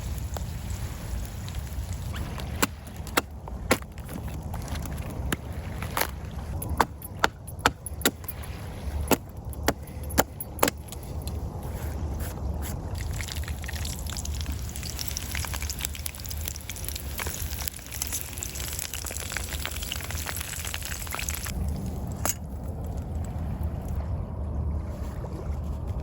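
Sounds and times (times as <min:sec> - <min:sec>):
low rumble: 0:21.3 - 0:26.0.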